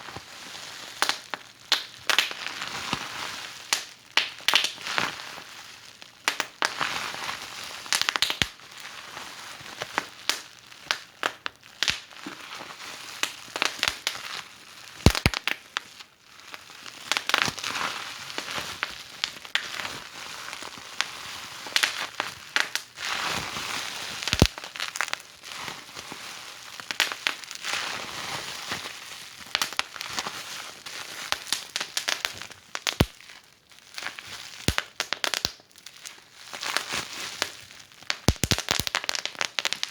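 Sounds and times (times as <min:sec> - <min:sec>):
sharp pops of fire: 0:15.0 - 0:15.6, 0:24.3 - 0:24.6, 0:31.5 - 0:33.2, 0:34.6 - 0:35.6, 0:38.1 - 0:39.9
wood fire crackling: 0:15.0 - 0:15.6, 0:24.2 - 0:25.2, 0:31.3 - 0:33.2, 0:34.5 - 0:35.6, 0:38.1 - 0:39.9.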